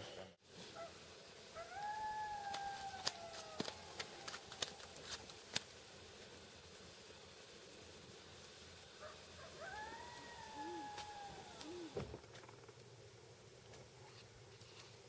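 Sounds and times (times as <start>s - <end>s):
animal whining call: 9.5s - 12.0s.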